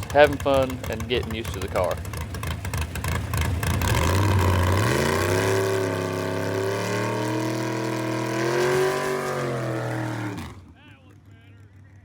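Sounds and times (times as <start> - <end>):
race car engine rising in pitch: 3.1 - 10.8.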